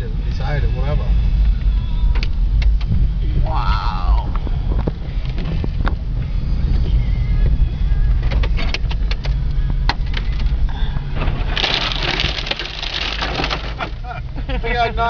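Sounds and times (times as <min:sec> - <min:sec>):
car rumble inside cabin: 0:00.0 - 0:15.0
branches scraping car: 0:11.1 - 0:14.2
ice clicking on car: 0:11.4 - 0:14.1.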